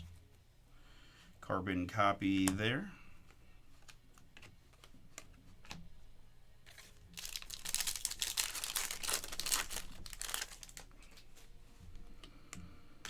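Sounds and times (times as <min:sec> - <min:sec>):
foil wrapper tearing and crinkling: 0:06.7 - 0:11.0.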